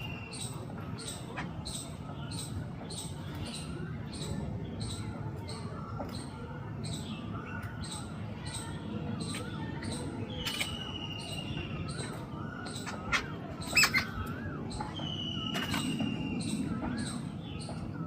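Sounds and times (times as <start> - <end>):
birds chirping: 0.0 - 18.0
long falling bird whistles: 10.4 - 17.8.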